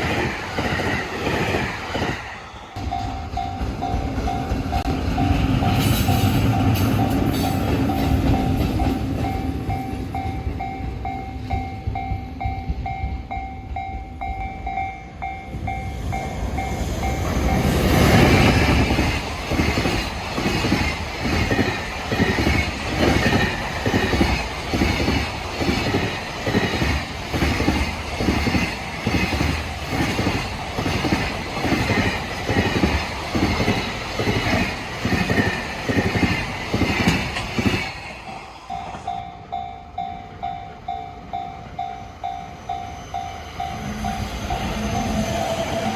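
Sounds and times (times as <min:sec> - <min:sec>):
train wheels clacking: 0:00.0 - 0:45.9
level-crossing bell clanging: 0:02.4 - 0:19.8, 0:38.2 - 0:45.9.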